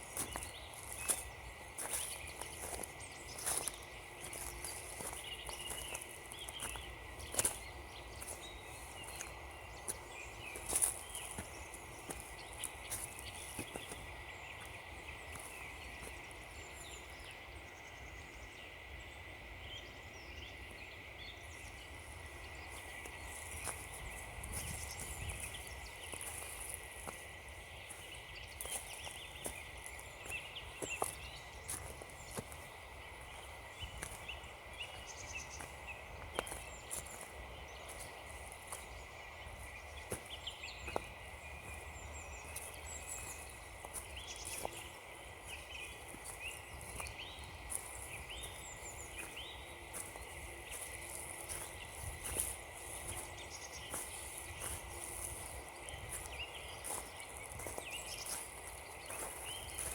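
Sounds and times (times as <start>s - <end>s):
footsteps crunching on frozen ground: 0.0s - 17.4s, 21.4s - 59.9s
small birds chirping: 0.0s - 59.9s.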